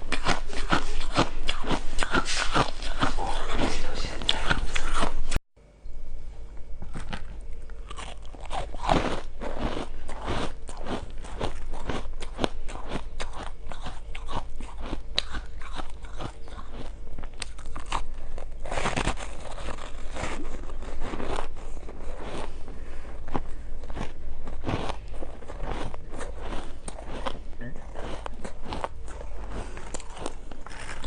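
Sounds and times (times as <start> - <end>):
crunching shaved ice: 6.9 - 22.6, 23.2 - 31.0.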